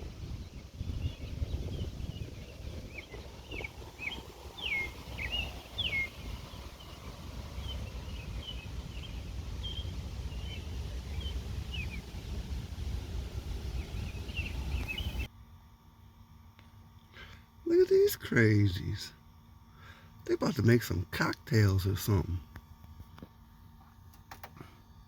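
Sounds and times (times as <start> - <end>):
songbirds chirping: 0.0 - 15.3, 17.7 - 25.0
steady low rumble: 0.0 - 15.3.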